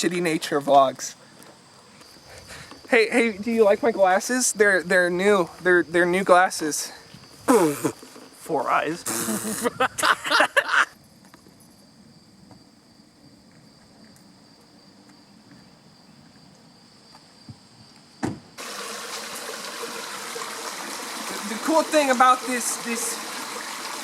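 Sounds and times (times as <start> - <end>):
voices and laughter: 9.0 - 11.0
small stream running: 18.6 - 24.0.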